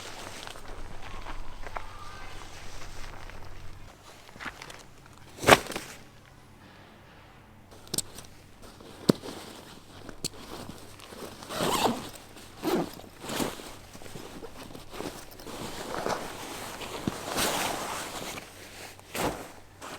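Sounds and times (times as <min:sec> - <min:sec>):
camping gear clicks and knocks: 0:03.3 - 0:06.4, 0:07.7 - 0:19.9.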